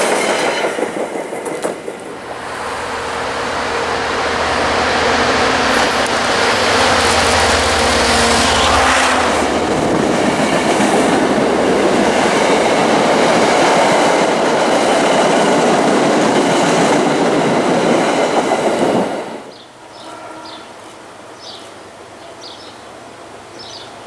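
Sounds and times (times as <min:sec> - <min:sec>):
train wheels on rails: 0:00.0 - 0:24.0
locomotive engine hum: 0:01.8 - 0:15.2.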